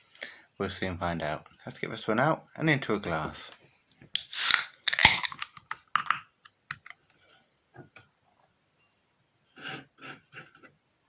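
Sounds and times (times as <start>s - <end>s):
beer can and glass clicking: 4.2s - 6.9s.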